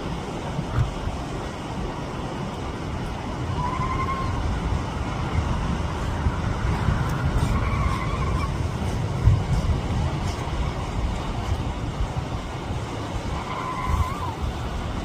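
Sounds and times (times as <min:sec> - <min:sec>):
road traffic rumble: 0:00.0 - 0:15.0
wind: 0:00.0 - 0:15.0
faint drawn-out high calls: 0:03.5 - 0:05.4, 0:07.4 - 0:08.7, 0:13.2 - 0:14.5.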